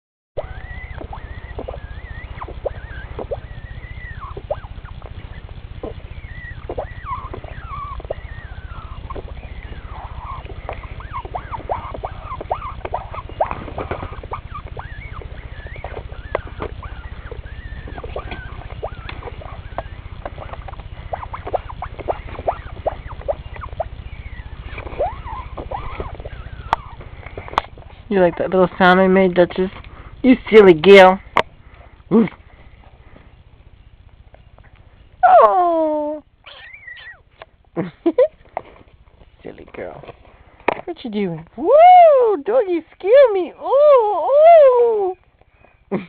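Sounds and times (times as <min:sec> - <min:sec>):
steady low hum: 0:00.4 - 0:46.0
person making squeaky mouth noises: 0:24.7 - 0:27.0, 0:35.2 - 0:37.2.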